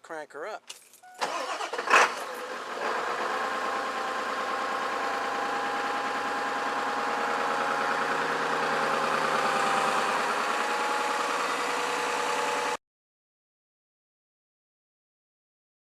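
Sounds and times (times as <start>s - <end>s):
diesel engine idling: 1.2s - 12.8s.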